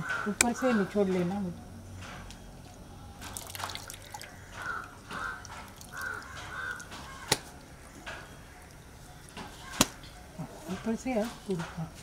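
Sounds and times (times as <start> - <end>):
bird calling: 4.0 - 10.7.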